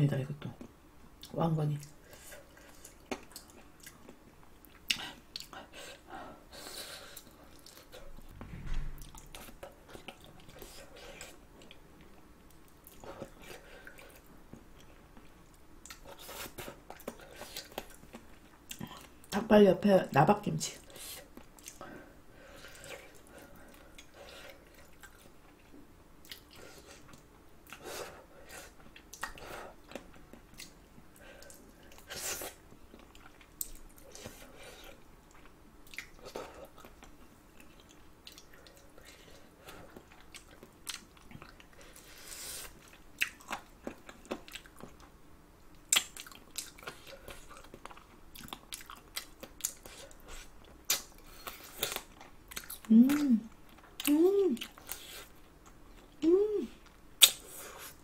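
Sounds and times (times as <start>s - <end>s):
close chewing and biting: 28.6s - 45.1s, 45.8s - 56.2s.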